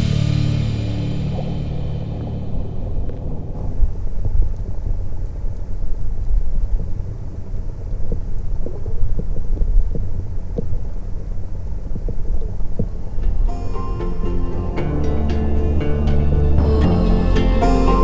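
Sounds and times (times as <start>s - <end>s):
boat motor rumbling: 0.0s - 5.7s, 12.7s - 18.0s.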